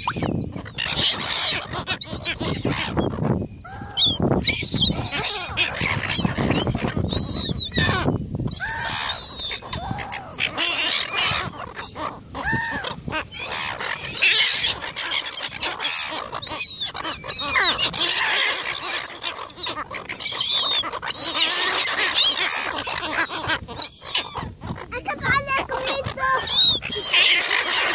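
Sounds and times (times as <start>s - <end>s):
gulls squabbling: 0.0s - 27.9s.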